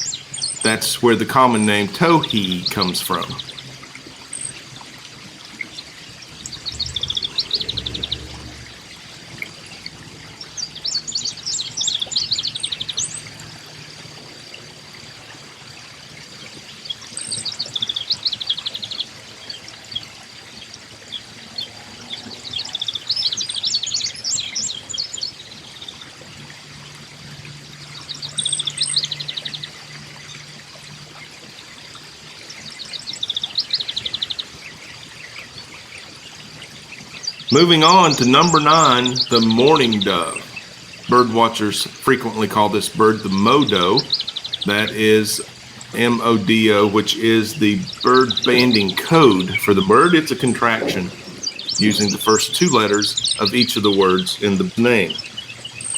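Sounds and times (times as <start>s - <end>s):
bird song with trill: 0.0s - 4.8s, 5.6s - 13.7s, 32.4s - 55.9s.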